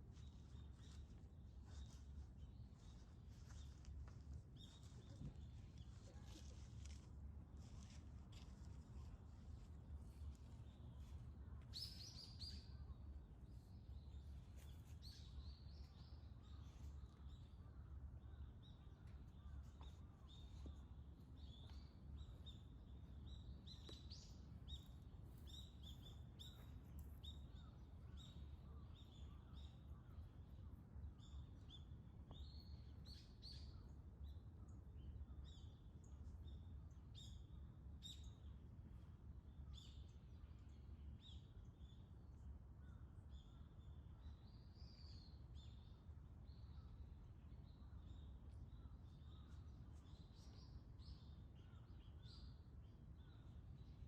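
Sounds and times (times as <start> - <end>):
small birds chirping: 10.2 - 38.5.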